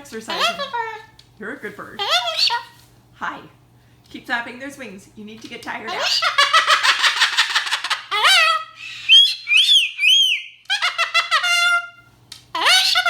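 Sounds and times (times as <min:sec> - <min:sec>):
cockatoo screeching and squawking: 0:00.3 - 0:00.9, 0:02.0 - 0:02.8, 0:05.9 - 0:13.0.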